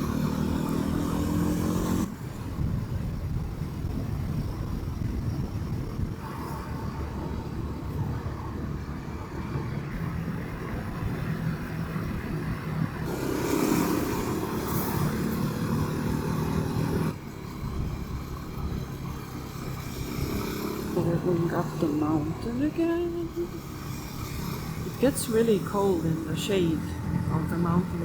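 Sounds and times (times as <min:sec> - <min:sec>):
motorcycle engine running: 0:00.0 - 0:28.0
wind noise: 0:00.0 - 0:28.0.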